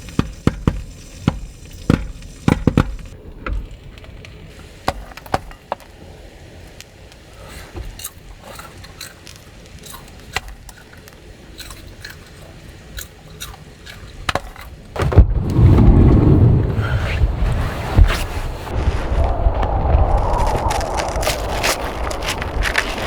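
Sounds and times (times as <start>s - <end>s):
clicks and scrapes of handling: 7.2s - 15.2s
rush of wind noise: 15.0s - 23.0s.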